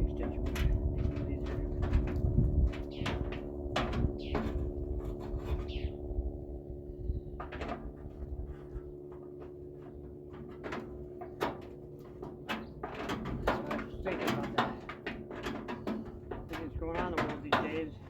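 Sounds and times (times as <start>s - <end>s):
steady hum: 0.0s - 18.0s
metal parts knocking and clinking: 9.4s - 18.0s.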